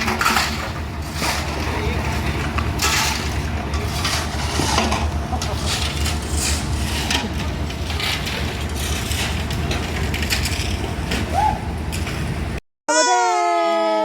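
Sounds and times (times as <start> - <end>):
knocks and clatter: 0.0 - 12.5
construction site and street noise: 0.0 - 13.9.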